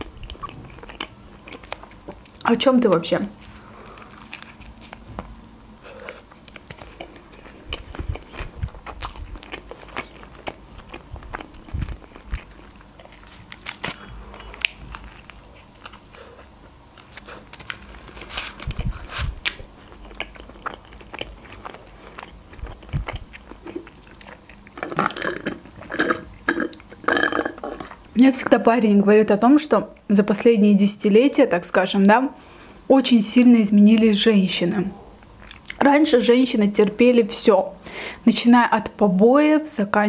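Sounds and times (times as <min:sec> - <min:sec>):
crunchy chewing: 0:00.0 - 0:02.5, 0:03.4 - 0:28.2.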